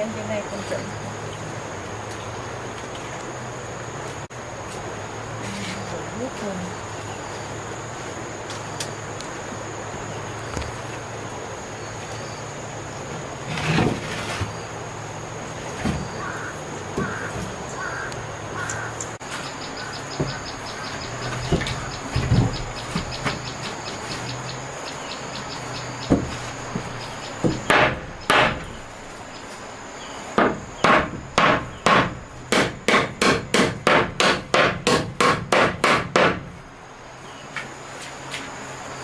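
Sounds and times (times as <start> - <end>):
hammer striking wood: 17.0 - 17.6, 20.1 - 23.8, 26.0 - 29.2, 30.4 - 36.5.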